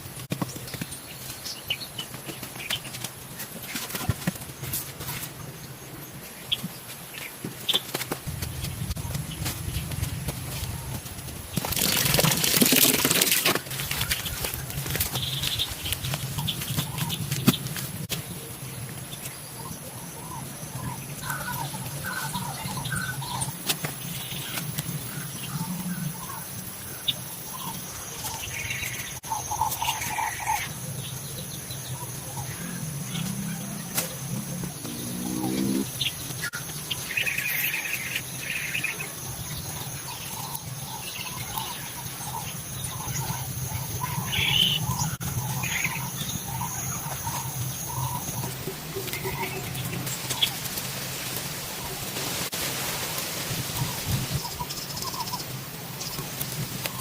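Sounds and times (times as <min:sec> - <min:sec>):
birds chirping: 0:13.9 - 0:50.8.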